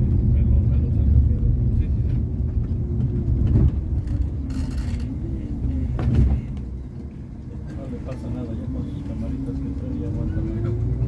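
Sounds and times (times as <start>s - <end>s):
coach engine and road noise: 0.0s - 11.0s.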